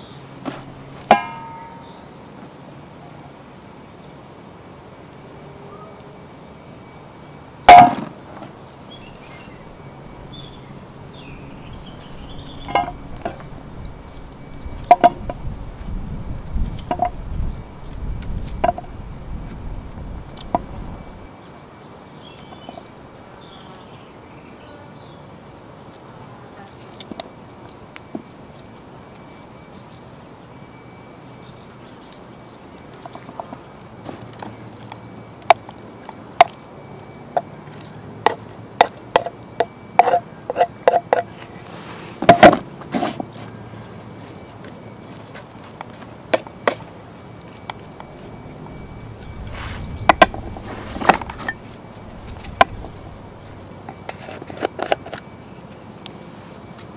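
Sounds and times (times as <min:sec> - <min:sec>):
faint birds chirping: 0:00.0 - 0:42.2, 0:43.2 - 0:56.9
clinks and knocks: 0:01.1 - 0:01.9, 0:12.6 - 0:13.6, 0:14.8 - 0:15.4, 0:16.8 - 0:17.2, 0:50.1 - 0:53.3
handling rumble: 0:07.7 - 0:21.3, 0:47.6 - 0:54.0.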